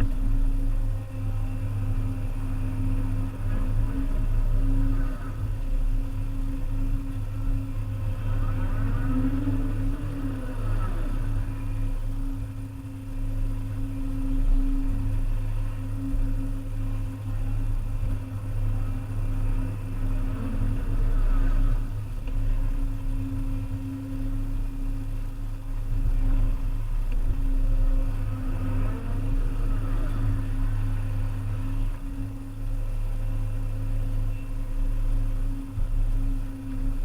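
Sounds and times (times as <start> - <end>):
excavator diesel engine running: 0.0 - 37.0
hydraulic whine: 0.0 - 37.0.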